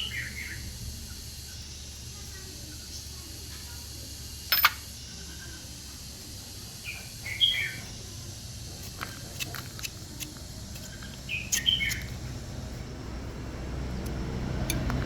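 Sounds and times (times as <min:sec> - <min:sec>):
steady low hum: 0:00.0 - 0:15.0
birds chirping: 0:06.8 - 0:08.2, 0:10.8 - 0:12.2.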